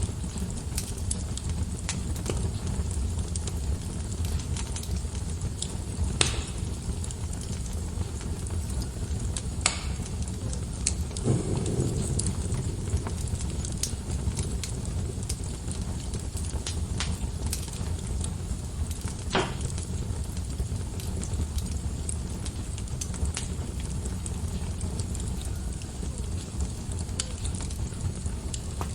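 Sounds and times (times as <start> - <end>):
wood fire crackling and popping: 0.0 - 28.9
dull thump: 11.2 - 14.9, 19.3 - 19.8.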